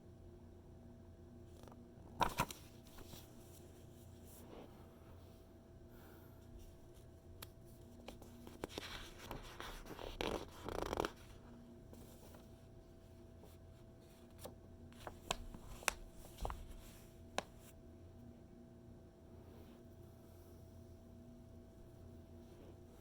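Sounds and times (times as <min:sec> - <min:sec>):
faint hum: 0:00.0 - 0:23.0
magazine pages rustling: 0:02.2 - 0:03.8, 0:07.4 - 0:11.4, 0:14.2 - 0:17.7
light paper ticks and taps: 0:07.4 - 0:12.5, 0:14.2 - 0:17.7.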